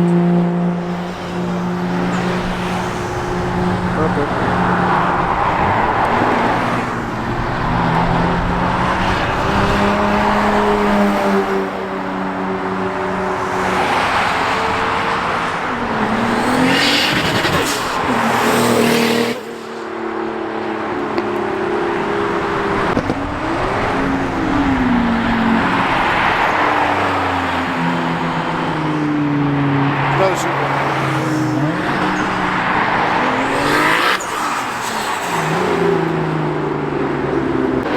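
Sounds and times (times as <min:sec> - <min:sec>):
car engines revving past: 0:00.0 - 0:37.9.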